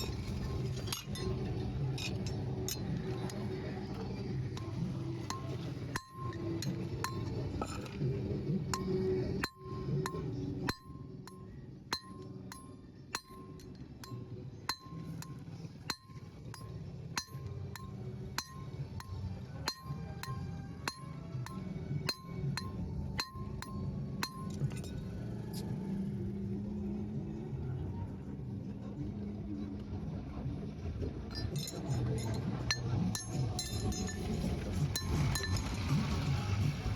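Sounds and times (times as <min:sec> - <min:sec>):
hammer striking metal: 0:04.4 - 0:08.0, 0:08.7 - 0:25.1, 0:31.4 - 0:35.9.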